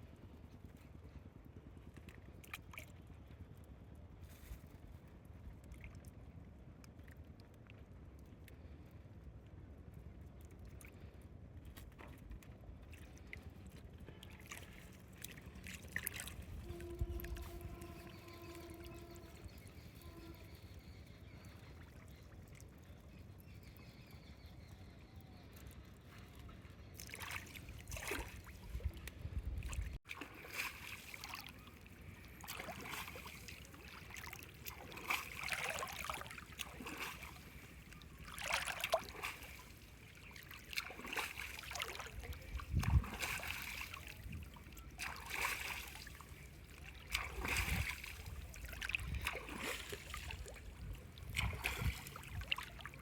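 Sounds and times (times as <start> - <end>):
water sloshing and splashing: 11.6 - 23.2, 25.6 - 53.0.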